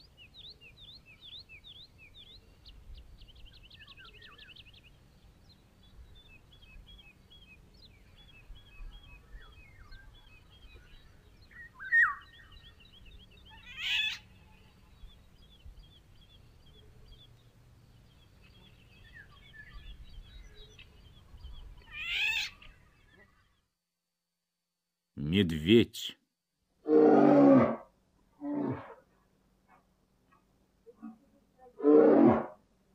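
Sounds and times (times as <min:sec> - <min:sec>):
loud bird calls: 0:00.0 - 0:23.6
small birds chirping: 0:00.0 - 0:23.7.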